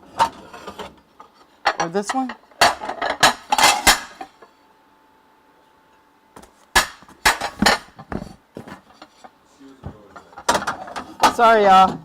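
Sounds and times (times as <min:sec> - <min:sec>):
plates clinking and knocking: 0:06.8 - 0:09.1.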